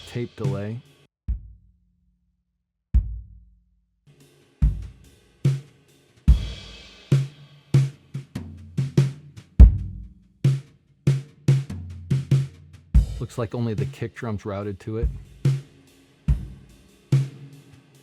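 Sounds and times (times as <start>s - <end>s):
drum kit playing a groove: 0.0s - 0.8s, 4.6s - 18.0s.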